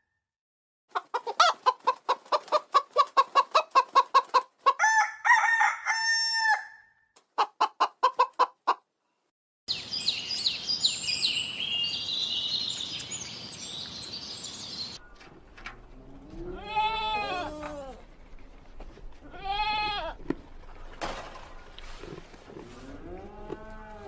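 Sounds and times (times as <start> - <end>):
hen clucking: 0.9 - 4.9, 7.3 - 8.8
rooster crowing: 4.8 - 6.9
birds chirping: 9.7 - 16.3.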